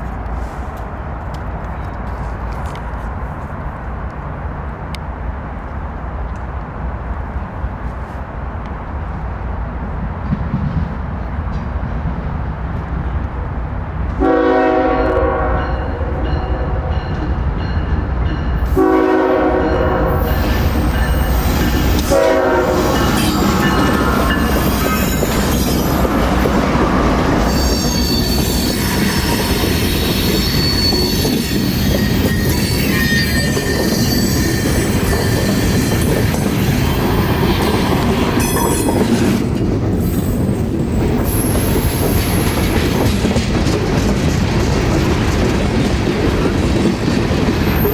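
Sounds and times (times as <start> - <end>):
train rumbling past: 0.0 - 47.9
train horn blasts: 14.2 - 17.2, 18.6 - 25.8
train wheel clatter: 17.0 - 47.9
high-pitched wheel squeal: 27.3 - 42.6.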